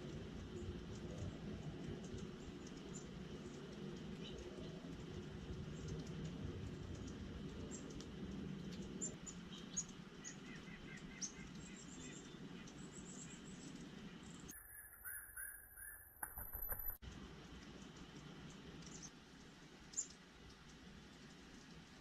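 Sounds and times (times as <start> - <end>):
small birds chirping: 1.8 - 17.0, 17.8 - 19.2, 19.8 - 20.2
clicks: 16.1 - 17.0.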